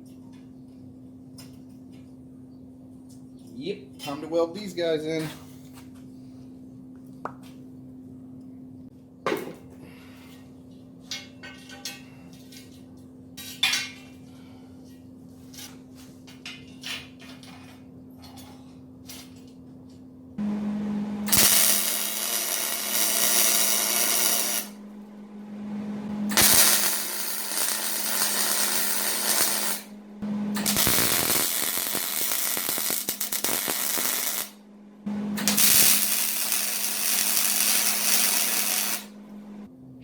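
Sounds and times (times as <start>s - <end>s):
welder hum: 20.4s - 39.7s
crackling welding arc: 21.3s - 24.8s, 26.3s - 29.9s, 30.5s - 34.6s, 35.4s - 39.2s.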